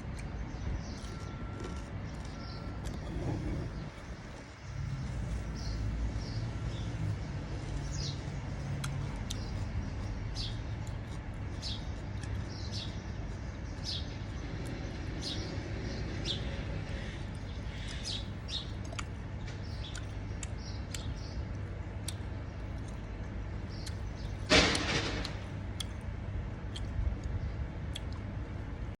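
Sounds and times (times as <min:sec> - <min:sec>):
steady low hum: 0:00.0 - 0:29.0
bird chirping: 0:00.1 - 0:23.0.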